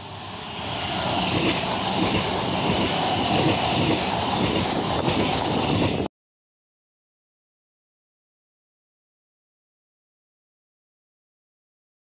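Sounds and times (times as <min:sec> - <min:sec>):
train passing on track: 0:00.0 - 0:06.1.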